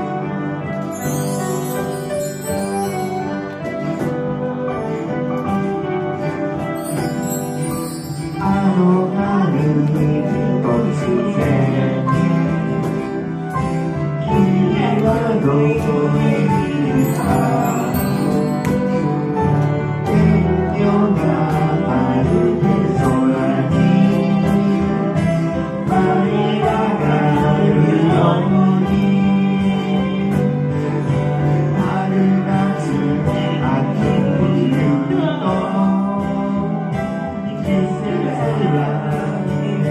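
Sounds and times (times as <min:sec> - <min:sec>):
instrumental accompaniment: 0:00.0 - 0:39.9
person singing with vibrato: 0:06.8 - 0:13.2, 0:14.1 - 0:19.4, 0:20.0 - 0:39.9.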